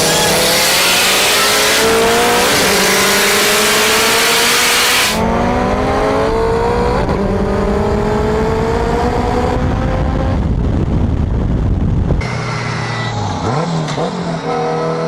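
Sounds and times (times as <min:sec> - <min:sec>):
car engine accelerating hard: 0:00.0 - 0:10.9.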